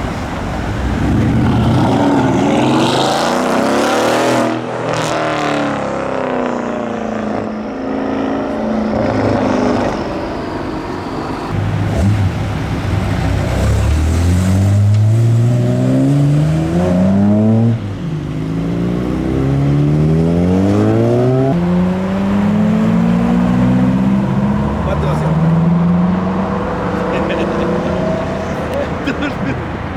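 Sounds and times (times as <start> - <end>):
car engine accelerating hard: 0.0 - 29.9.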